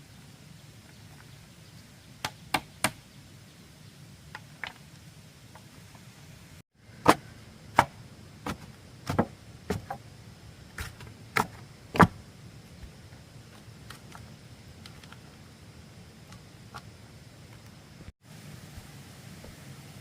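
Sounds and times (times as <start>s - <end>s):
tool chopping bamboo: 7.0s - 10.0s.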